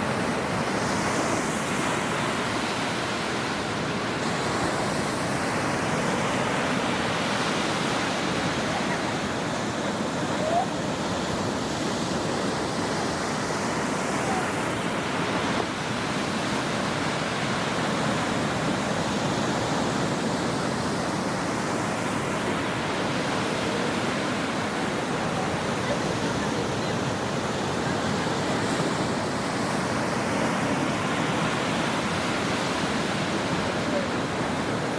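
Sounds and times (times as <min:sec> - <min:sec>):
ocean waves washing onto shore: 0:00.0 - 0:34.9.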